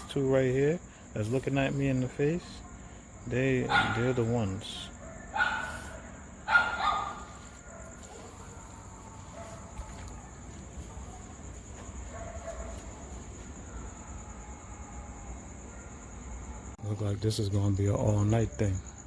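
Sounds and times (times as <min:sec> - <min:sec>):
crickets chirring: 0:00.0 - 0:19.0
dog barking: 0:01.9 - 0:14.3.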